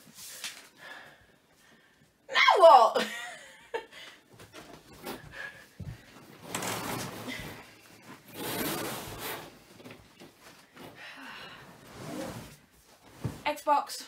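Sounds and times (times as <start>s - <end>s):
mattress scraping on wood: 6.3s - 10.0s, 11.8s - 13.5s.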